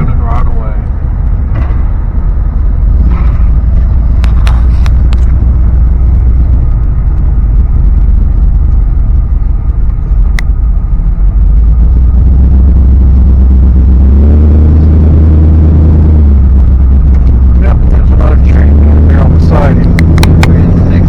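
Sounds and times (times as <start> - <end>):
truck engine and road noise: 0.0 - 21.0
sharp clicks: 19.8 - 20.9.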